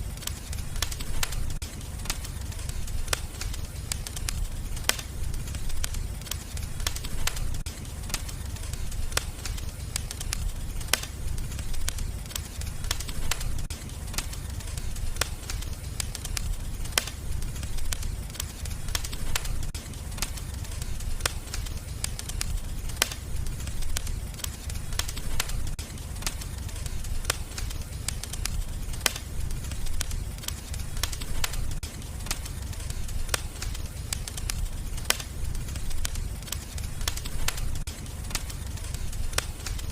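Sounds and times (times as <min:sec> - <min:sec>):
fire flames rumbling: 0:00.0 - 0:39.9
wood fire pops and snaps: 0:00.0 - 0:39.9.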